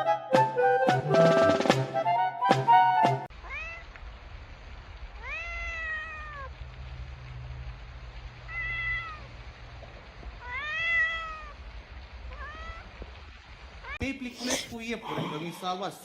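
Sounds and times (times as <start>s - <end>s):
cat meowing: 3.4s - 3.8s, 5.2s - 6.5s, 8.5s - 9.3s, 10.4s - 11.6s, 12.3s - 12.9s.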